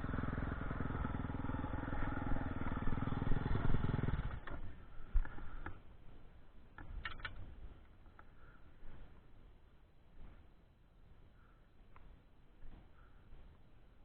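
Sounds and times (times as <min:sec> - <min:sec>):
dirt bike engine running: 0:00.0 - 0:05.6
faint clicks and knocks: 0:04.4 - 0:09.2.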